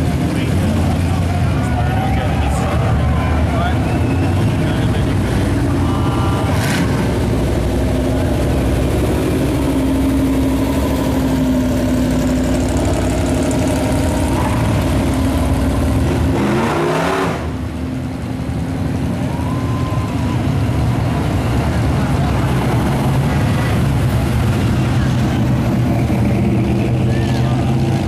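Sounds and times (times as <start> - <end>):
car engines running: 0.0 - 28.0
car engine revving: 2.6 - 19.2.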